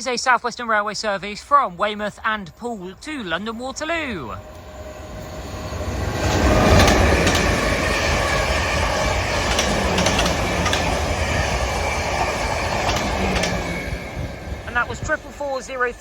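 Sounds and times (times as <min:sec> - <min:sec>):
train rushing past: 0:02.9 - 0:16.0
wheels clicking on rails: 0:03.3 - 0:16.0.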